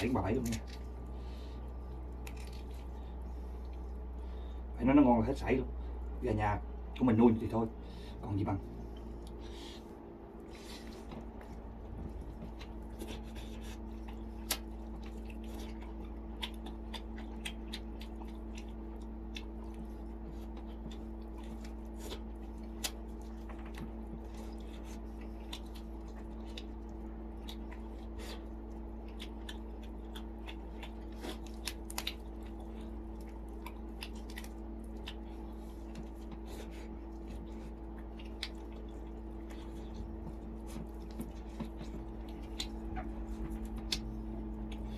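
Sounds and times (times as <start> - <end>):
person chewing: 0.0 - 4.7, 8.7 - 44.9
steady low hum: 0.0 - 44.9
wet clicks and smacks: 14.0 - 36.4, 37.0 - 44.9.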